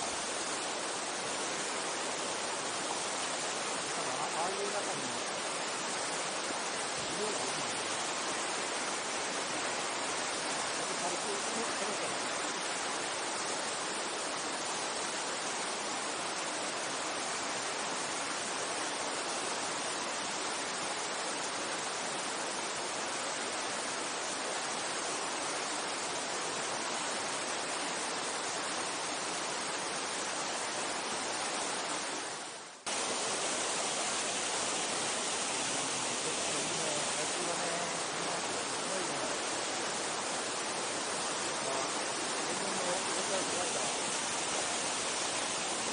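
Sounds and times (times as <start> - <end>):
stream water rushing: 0.0 - 45.9.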